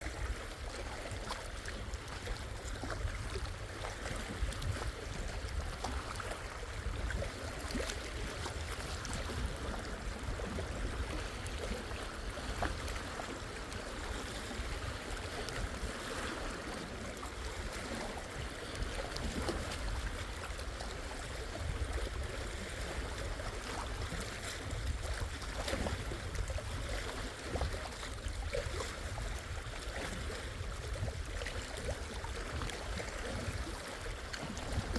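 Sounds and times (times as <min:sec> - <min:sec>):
waves lapping at shore: 0:00.0 - 0:34.9.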